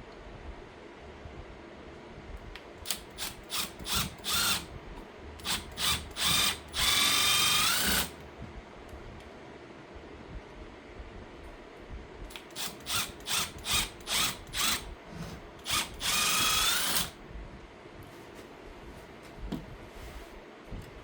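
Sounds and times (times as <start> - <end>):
power drill whining: 2.9 - 4.7, 5.4 - 8.2, 12.3 - 14.9, 15.6 - 17.2.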